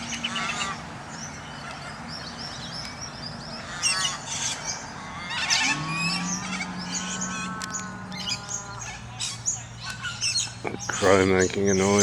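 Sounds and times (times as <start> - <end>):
other birds chirping: 0.0 - 12.0
cockatoos screeching: 3.7 - 11.2.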